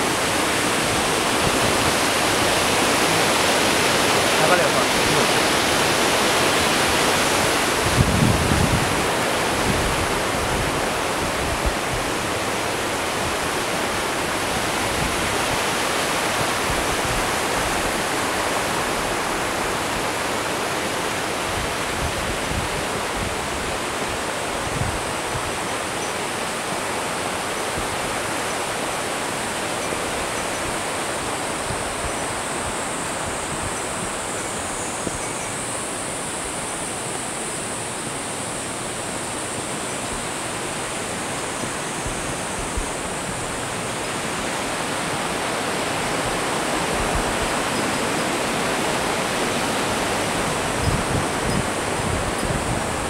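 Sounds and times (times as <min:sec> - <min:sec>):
stream and waterfall rushing: 0:00.0 - 0:53.0.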